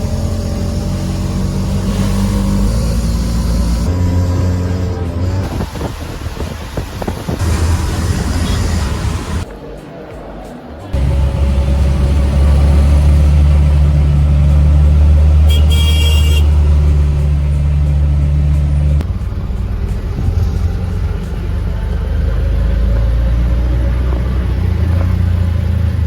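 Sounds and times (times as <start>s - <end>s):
vehicle engine droning: 0.0s - 9.5s, 10.9s - 26.0s
vehicle horn honking: 15.4s - 16.9s.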